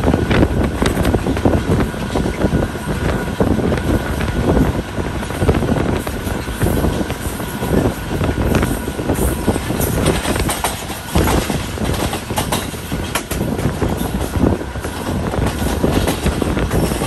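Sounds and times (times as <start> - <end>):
train wheels rumbling on rail: 0.0 - 17.0
knocks and rattles: 8.5 - 14.4.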